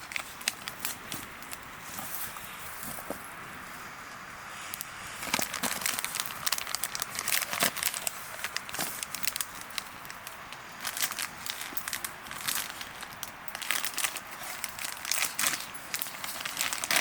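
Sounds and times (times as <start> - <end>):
dry leaves crunching: 5.1 - 17.0.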